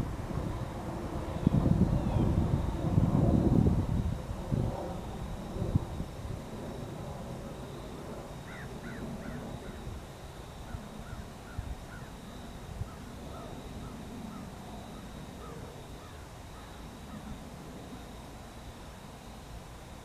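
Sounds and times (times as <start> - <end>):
bird calling: 8.4 - 9.8.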